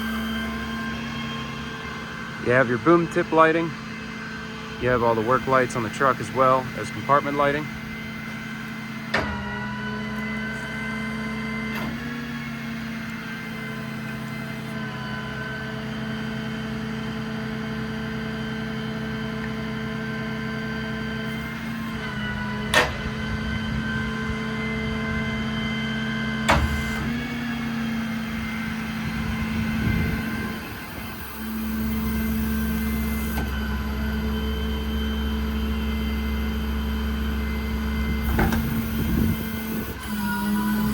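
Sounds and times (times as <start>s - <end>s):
diesel engine running: 0.0s - 40.9s
sharp clunks: 22.7s - 23.2s, 26.5s - 27.0s.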